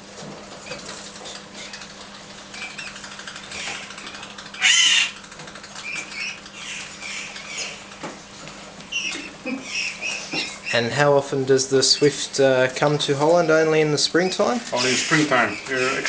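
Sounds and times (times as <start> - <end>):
bird harsh call: 2.5 - 5.2, 5.8 - 7.9, 8.9 - 10.9, 14.3 - 16.0
bird chirping: 2.5 - 8.0, 8.9 - 10.9.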